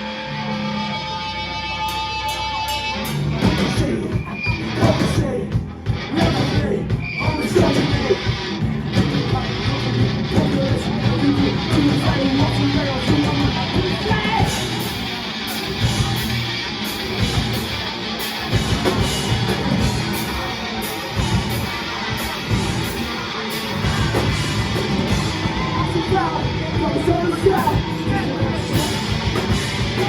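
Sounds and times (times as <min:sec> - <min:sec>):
live rock band playing: 0:00.0 - 0:30.0
electric guitar strumming: 0:07.5 - 0:30.0
drum and cymbal hits: 0:07.6 - 0:30.0.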